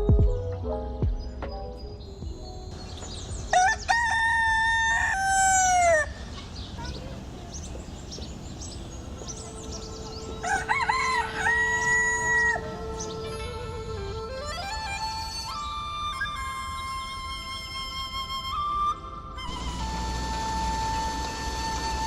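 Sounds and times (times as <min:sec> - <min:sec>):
rooster crowing: 0:03.5 - 0:06.2, 0:10.2 - 0:12.8.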